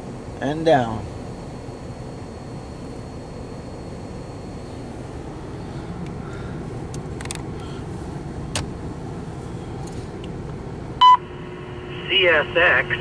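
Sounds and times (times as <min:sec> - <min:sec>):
scanner radio beep: 0:00.0 - 0:05.3, 0:11.0 - 0:13.0.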